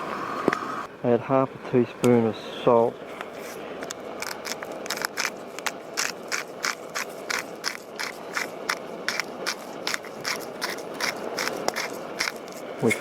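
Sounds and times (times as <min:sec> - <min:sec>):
sharp crackles or scrapes: 0:03.2 - 0:13.0.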